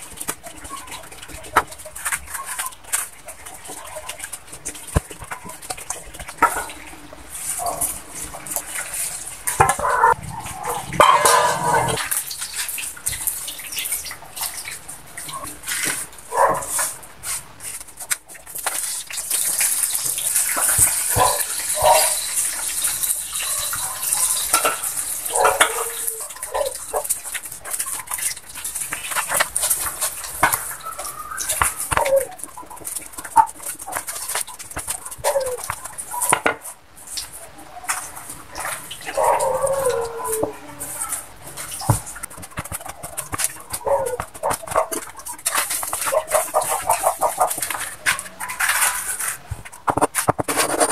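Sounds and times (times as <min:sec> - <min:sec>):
animal calls: 0:09.5 - 0:12.0, 0:20.4 - 0:28.2, 0:30.2 - 0:36.4, 0:37.4 - 0:42.2, 0:42.8 - 0:49.2.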